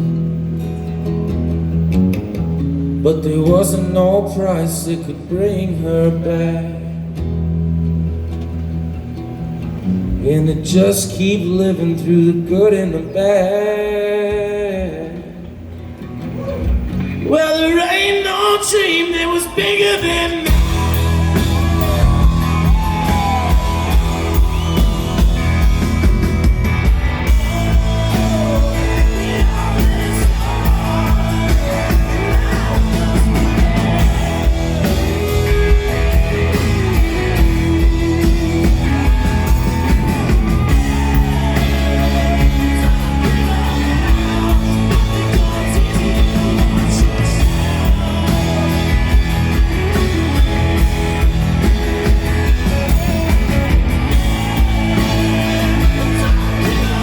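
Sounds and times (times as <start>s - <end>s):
bass guitar: 0.0s - 57.0s
guitars: 0.0s - 57.0s
drums keeping a beat: 19.8s - 57.0s.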